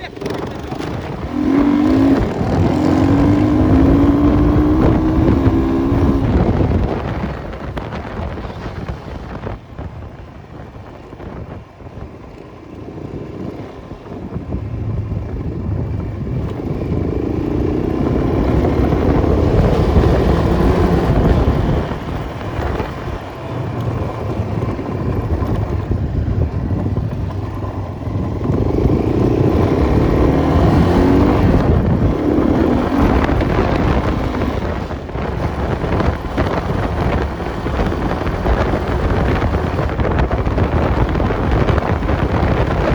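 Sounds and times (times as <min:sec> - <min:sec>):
motorcycle engine revving: 0:00.0 - 0:42.9
wind buffeting microphone: 0:00.0 - 0:42.9.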